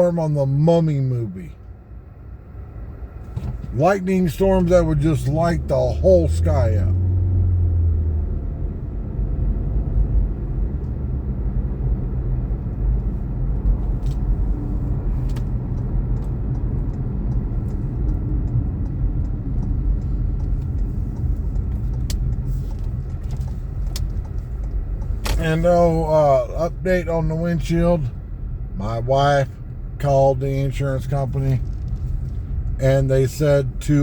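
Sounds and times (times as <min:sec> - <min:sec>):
road and engine rumble in car: 0:00.0 - 0:34.0
faint light ticks: 0:13.7 - 0:25.7.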